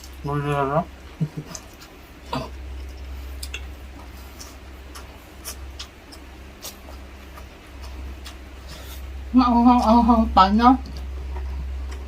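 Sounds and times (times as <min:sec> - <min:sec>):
low steady hum: 0:00.0 - 0:12.0
person chewing food: 0:01.0 - 0:09.2.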